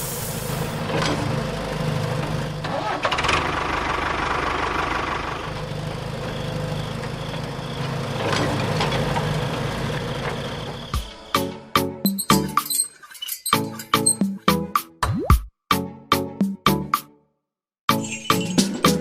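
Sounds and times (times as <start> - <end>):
small engine running: 0.6 - 11.0.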